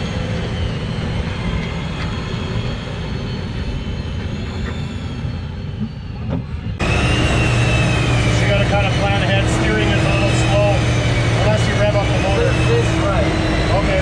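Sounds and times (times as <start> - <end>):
truck engine rumbling: 0.0 - 14.0.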